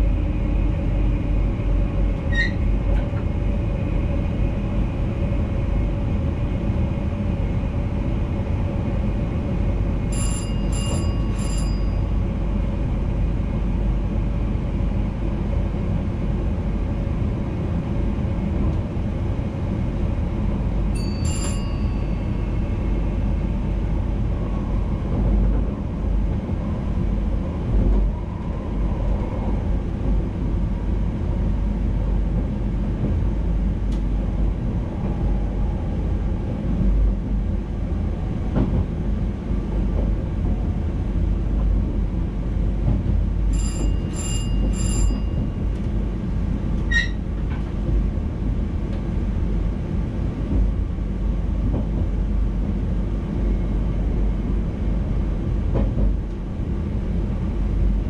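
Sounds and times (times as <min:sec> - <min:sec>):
train rumbling: 0:00.0 - 0:58.0.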